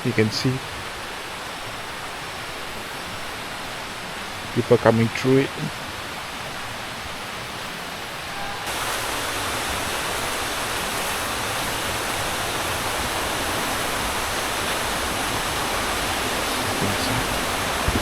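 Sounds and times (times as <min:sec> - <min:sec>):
river running over rocks: 0:00.0 - 0:18.0.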